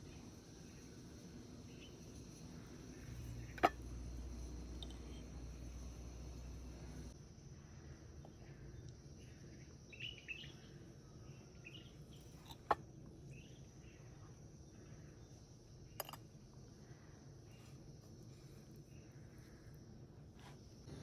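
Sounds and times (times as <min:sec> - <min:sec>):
faint birds chirping: 0:08.1 - 0:16.1.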